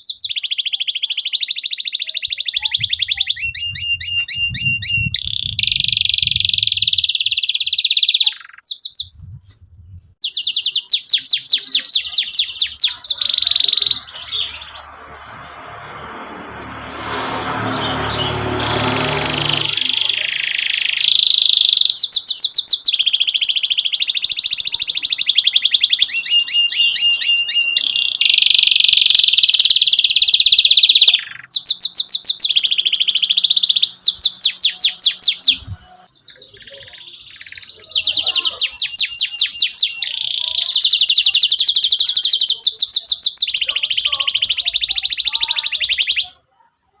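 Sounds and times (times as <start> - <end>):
canary singing trills: 0.0 - 9.4, 10.0 - 16.1, 17.0 - 46.5.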